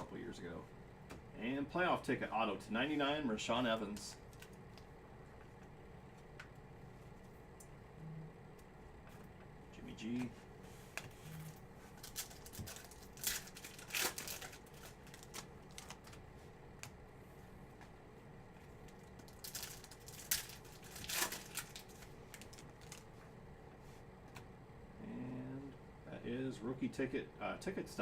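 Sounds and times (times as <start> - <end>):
card pack wrappers crinkling and tearing: 11.4 - 16.2, 18.8 - 23.2.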